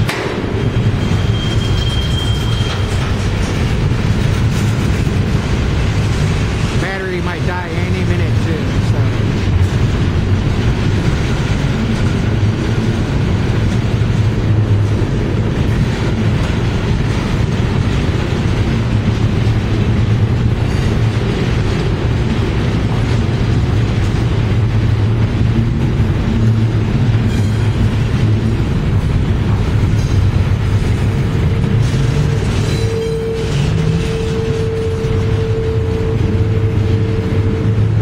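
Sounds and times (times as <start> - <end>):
steel wheels rumbling on rails: 0.0 - 38.0.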